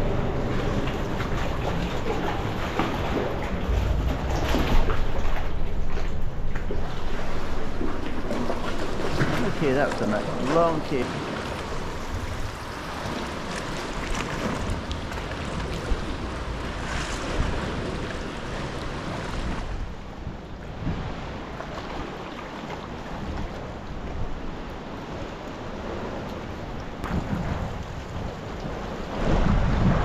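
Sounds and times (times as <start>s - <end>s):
water lapping and splashing: 0.0s - 30.0s
wind buffeting microphone: 27.0s - 30.0s.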